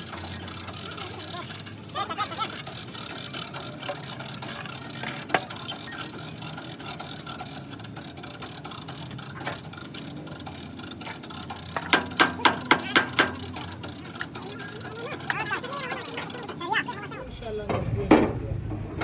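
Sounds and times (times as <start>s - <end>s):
workshop background noise: 0.0s - 19.0s.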